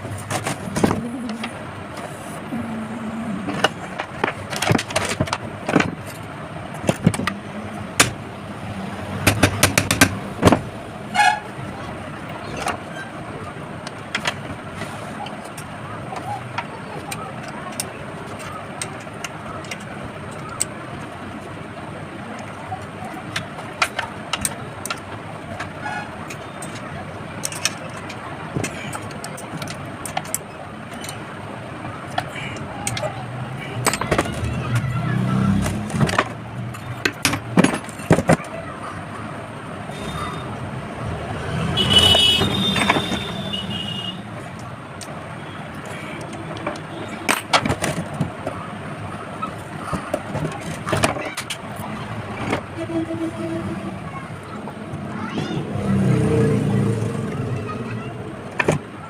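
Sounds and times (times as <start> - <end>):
street traffic: 0.0 - 59.0
sharp clicks and knocks: 3.5 - 8.2, 9.2 - 10.8, 22.4 - 33.1, 33.8 - 38.6, 41.8 - 52.8, 58.5 - 59.0.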